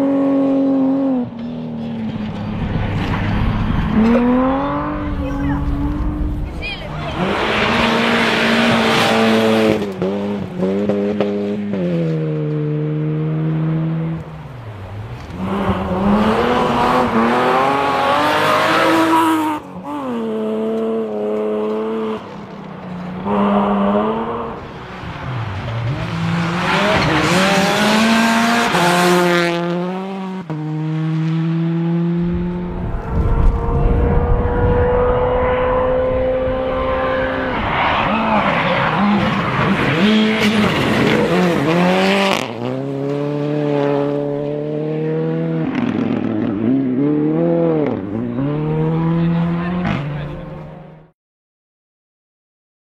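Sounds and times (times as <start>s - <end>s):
rally car engines at full speed: 0.0s - 51.1s.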